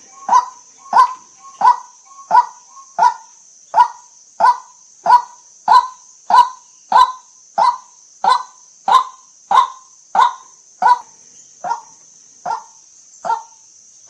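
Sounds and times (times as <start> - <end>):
waterhen harsh calls: 0.0 - 3.2.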